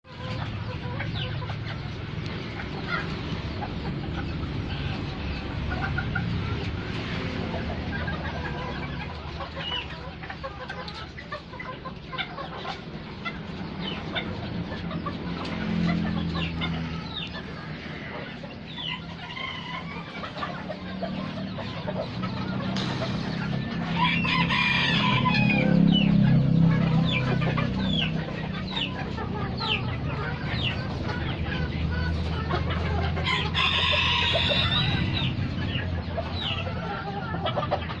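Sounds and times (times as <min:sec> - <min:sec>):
chickens clucking: 0:00.0 - 0:38.0
rooster crowing: 0:23.9 - 0:26.0, 0:33.2 - 0:35.3.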